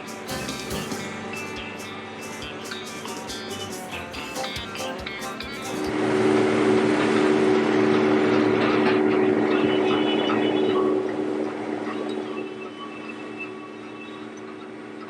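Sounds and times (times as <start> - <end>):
combine harvester running: 0.0 - 11.8.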